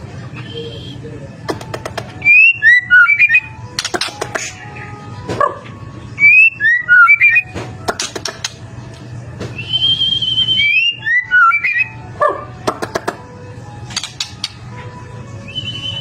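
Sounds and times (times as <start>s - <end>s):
bird singing whistled notes: 0.3s - 1.1s, 2.2s - 3.5s, 6.2s - 7.5s, 9.6s - 12.0s, 15.5s - 16.0s
bird sharp clicking notes: 1.5s - 4.7s, 7.0s - 8.6s, 13.9s - 14.7s.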